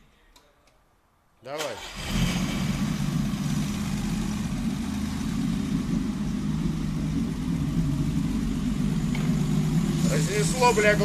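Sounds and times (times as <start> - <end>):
loud truck engine running: 2.4 - 11.0.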